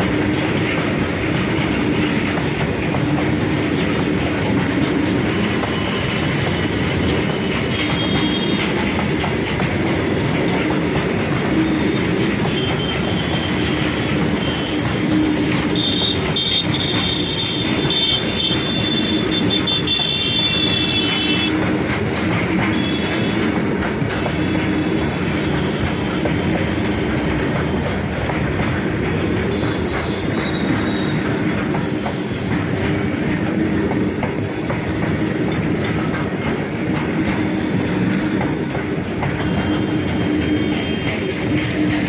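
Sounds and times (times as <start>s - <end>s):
train wheels clattering over rails: 0.0s - 42.0s
high wheel squeal: 29.5s - 31.4s.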